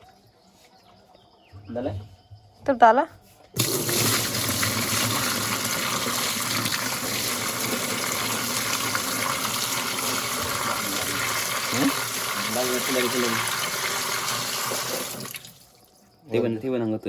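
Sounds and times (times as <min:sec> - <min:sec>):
water gushing into washing machine: 0:03.6 - 0:15.9.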